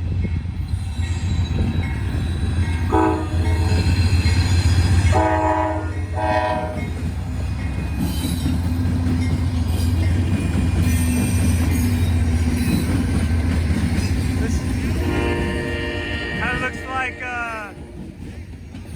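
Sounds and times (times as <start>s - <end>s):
low rumble of passing train: 0.0s - 18.9s
locomotive horn blasts: 2.9s - 3.8s, 5.1s - 6.9s, 15.0s - 18.0s.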